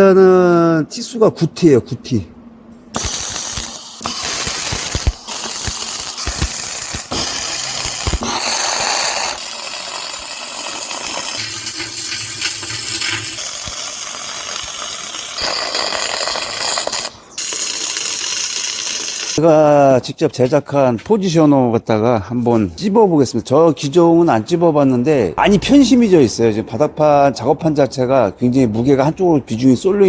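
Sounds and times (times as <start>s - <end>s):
welding arc crackling and hissing: 3.0s - 19.4s.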